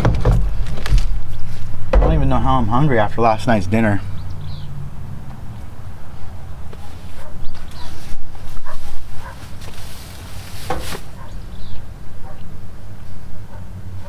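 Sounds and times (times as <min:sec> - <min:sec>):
steady low rumble: 0:00.4 - 0:04.5.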